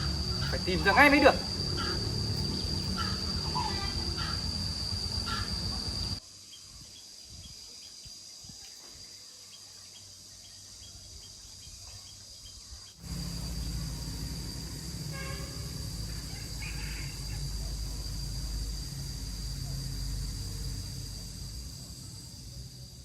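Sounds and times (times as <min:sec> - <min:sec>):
high-pitched insect drone: 0:00.0 - 0:23.0
low rumble: 0:13.0 - 0:23.0.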